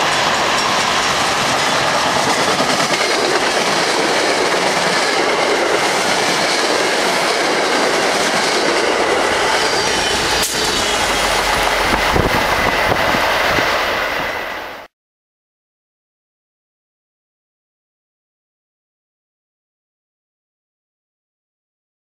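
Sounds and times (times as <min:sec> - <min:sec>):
train wheels on rails: 0:00.0 - 0:14.9.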